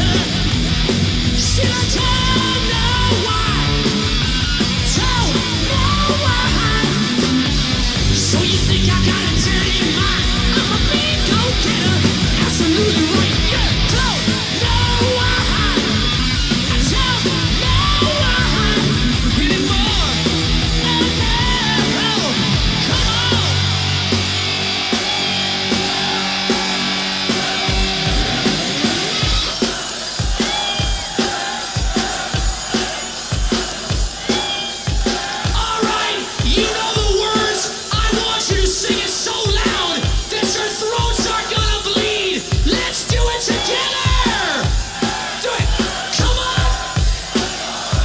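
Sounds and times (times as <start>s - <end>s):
bass guitar: 0.0s - 29.6s
distorted electric guitar lead: 0.0s - 44.8s
steady drum beat: 0.0s - 48.0s.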